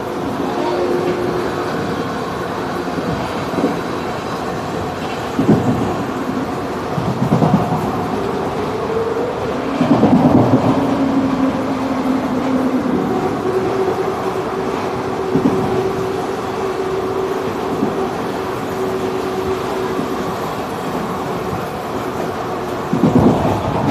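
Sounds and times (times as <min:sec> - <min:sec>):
train wheels rumbling on track: 0:00.0 - 0:23.9
clatter over rail joints: 0:20.1 - 0:23.9.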